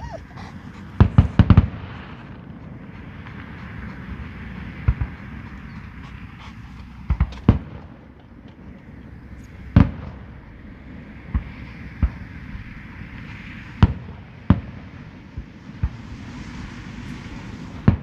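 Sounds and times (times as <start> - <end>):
fireworks bangs: 0.6 - 5.4, 7.1 - 8.7, 9.7 - 10.3, 13.2 - 18.0.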